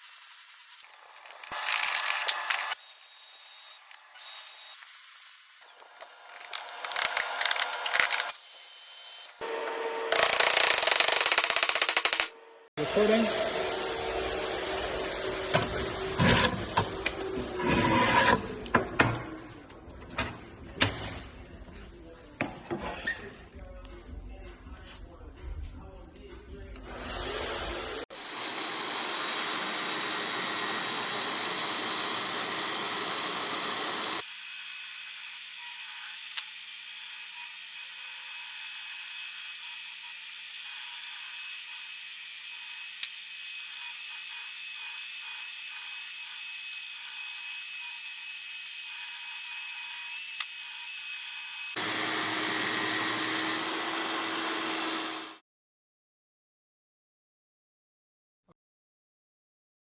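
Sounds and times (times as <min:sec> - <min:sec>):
power tools cutting wood: 0:00.0 - 0:19.4, 0:26.9 - 0:55.4.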